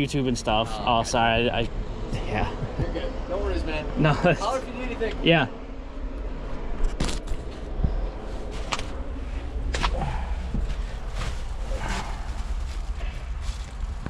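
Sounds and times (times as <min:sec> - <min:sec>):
footsteps: 0:09.7 - 0:14.0.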